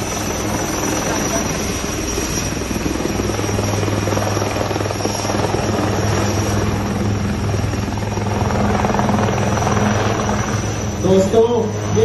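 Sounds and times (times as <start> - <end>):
helicopter engine noise: 0.0 - 12.0
helicopter rotor thrum: 0.0 - 12.0
faint high whine: 9.8 - 12.0.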